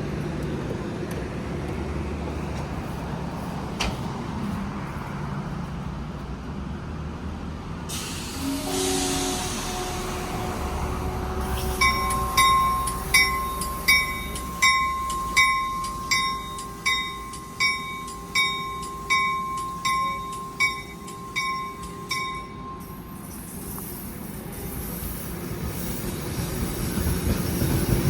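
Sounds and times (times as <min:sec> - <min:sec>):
low train rumble: 0:00.0 - 0:28.0
railway bell ringing: 0:07.9 - 0:24.4.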